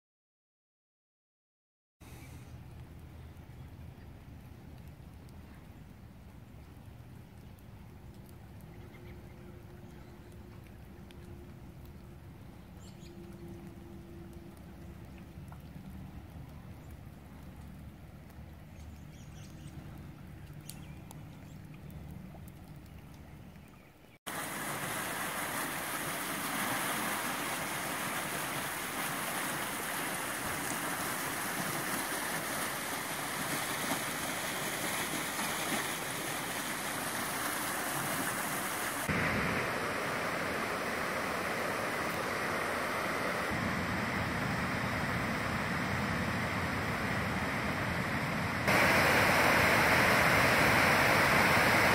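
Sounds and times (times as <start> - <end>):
floodwater rushing: 24.3 - 51.9.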